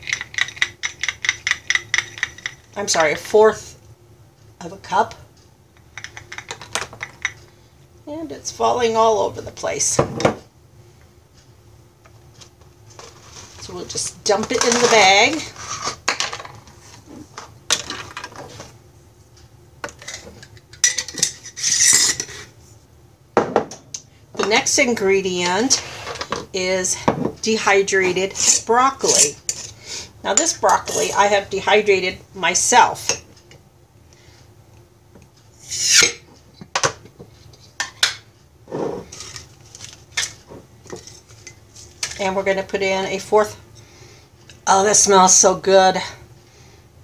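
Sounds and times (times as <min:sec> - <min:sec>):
utensil scrape: 0:13.0 - 0:13.8, 0:14.5 - 0:16.1, 0:21.2 - 0:22.6, 0:25.7 - 0:26.3, 0:28.1 - 0:29.9, 0:35.6 - 0:36.3
kitchen utensils clattering: 0:19.9 - 0:22.5.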